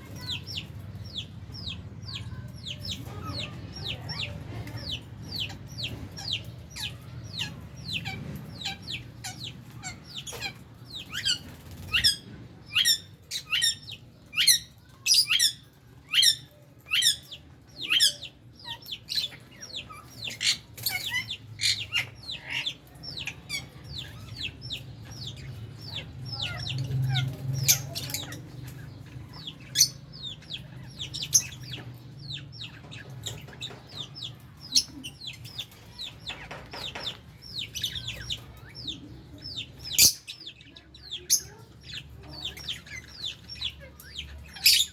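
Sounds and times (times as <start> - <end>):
lovebirds chirping: 0.0 - 44.9.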